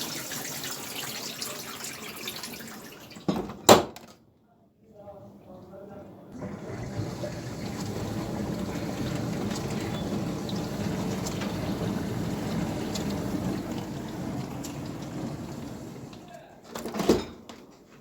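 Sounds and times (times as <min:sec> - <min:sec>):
running water rushing: 0:00.0 - 0:03.2, 0:06.4 - 0:16.3.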